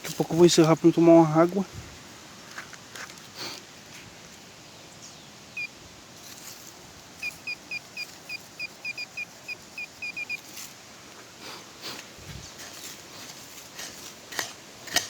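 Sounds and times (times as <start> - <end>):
bird chirping high: 5.0 - 5.8, 7.2 - 10.4.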